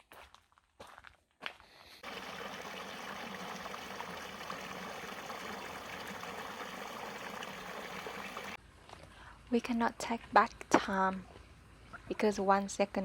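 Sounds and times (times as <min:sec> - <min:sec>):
running water: 0:02.0 - 0:08.6.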